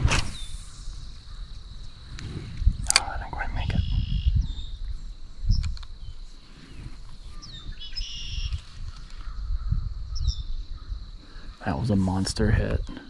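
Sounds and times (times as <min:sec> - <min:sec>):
birds chirping and calling: 0:00.3 - 0:12.0
low rumbling on microphone: 0:02.0 - 0:05.7.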